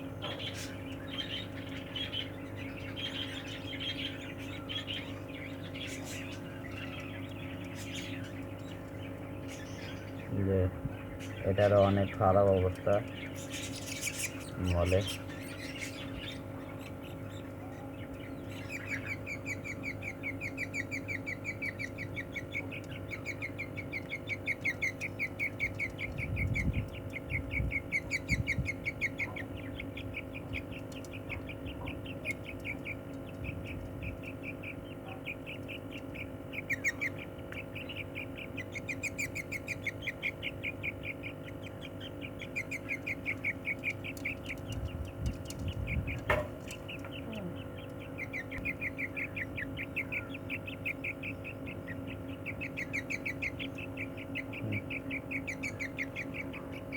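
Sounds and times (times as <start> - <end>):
bird chicks chirping: 0.0 - 56.9.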